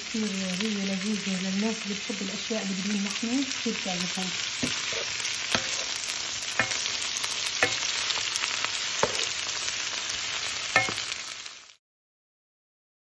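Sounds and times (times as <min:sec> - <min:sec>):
beans sizzling in oil: 0:00.0 - 0:11.8
spatula knocking against pot: 0:04.6 - 0:06.0, 0:06.6 - 0:07.0, 0:07.6 - 0:08.0, 0:09.0 - 0:09.3, 0:10.8 - 0:11.0.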